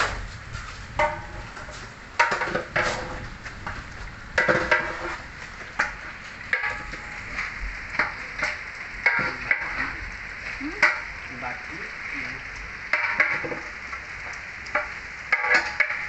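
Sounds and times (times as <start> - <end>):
food sizzling in a pot: 0.9 - 16.0
metal spatula scraping pot: 1.0 - 3.2, 4.4 - 5.2.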